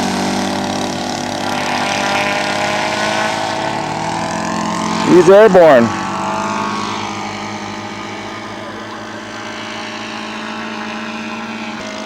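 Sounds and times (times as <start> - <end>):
model plane engines running: 0.0 - 12.0.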